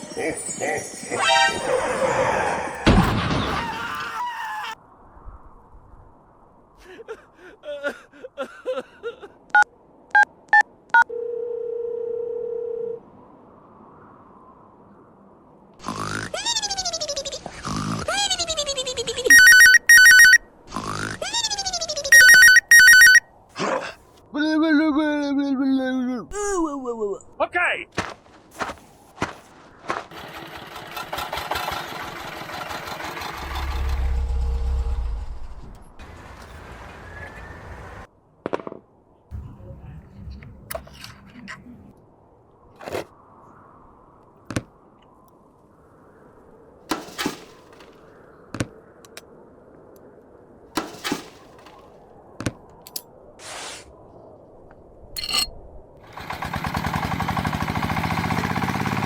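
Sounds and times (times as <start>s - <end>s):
steady dial tone: 10.5s - 13.0s, 19.3s - 20.4s, 22.1s - 23.2s
two-tone keypad beeps: 19.3s - 20.4s, 22.1s - 23.2s
engine deep rumble: 30.1s - 38.1s.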